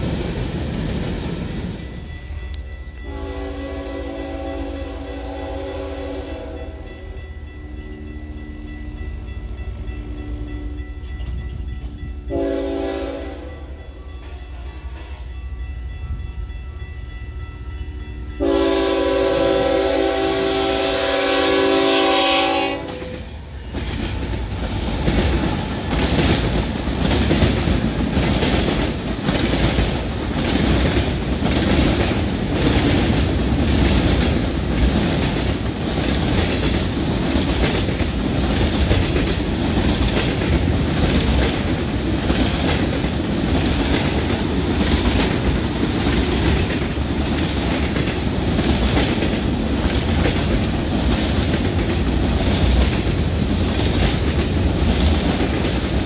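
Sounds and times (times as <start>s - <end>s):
freight train rolling past: 0.0s - 56.0s
train horn: 3.0s - 11.5s, 12.1s - 15.7s, 17.5s - 24.0s
wheels clacking over rail joints: 22.8s - 56.0s.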